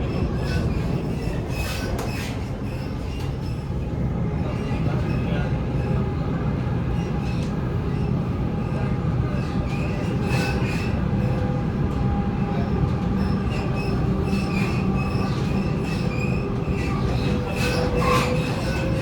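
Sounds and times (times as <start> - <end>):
train wheels rumbling: 0.0 - 19.0
wheel squeals: 13.2 - 19.0.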